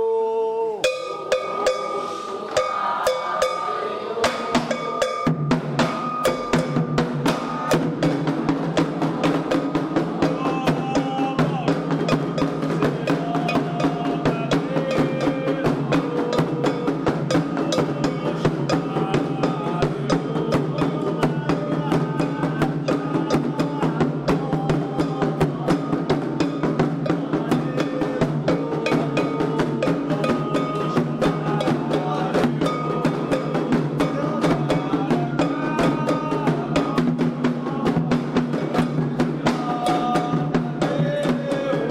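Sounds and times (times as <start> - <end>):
chanted melody: 0.8 - 8.0
hand drums fast rhythm: 0.8 - 41.9.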